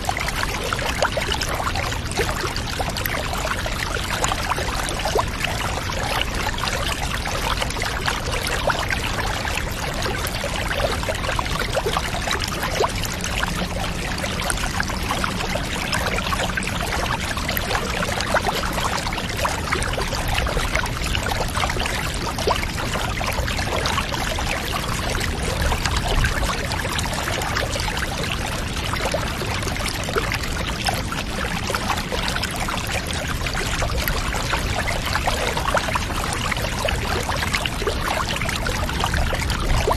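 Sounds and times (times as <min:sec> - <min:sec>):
water pouring and trickling: 0:00.0 - 0:39.9
water splashes and drips: 0:00.0 - 0:39.9.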